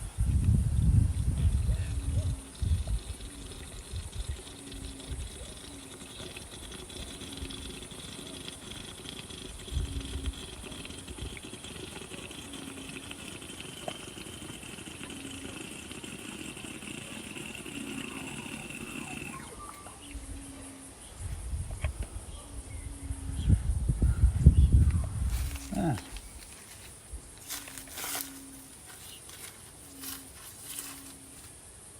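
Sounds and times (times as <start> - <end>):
oil pouring from a bottle: 1.1 - 19.5.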